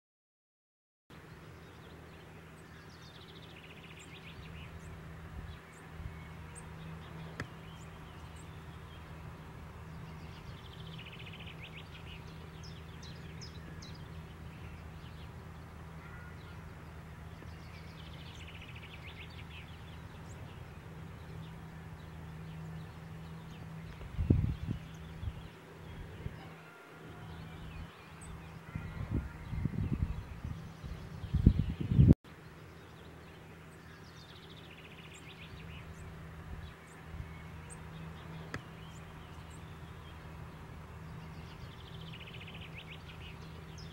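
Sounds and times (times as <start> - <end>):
songbirds calling: 1.1 - 43.9
steady low hum: 1.1 - 43.9.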